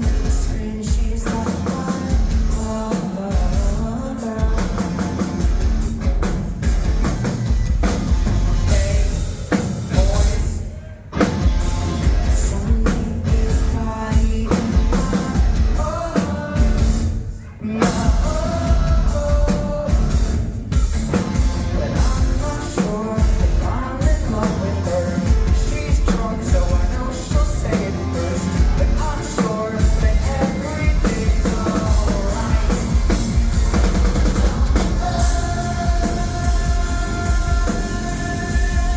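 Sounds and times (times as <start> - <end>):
drum kit: 0.0 - 38.9
live rock band playing: 0.0 - 38.9
person singing: 8.5 - 20.4, 21.4 - 38.9.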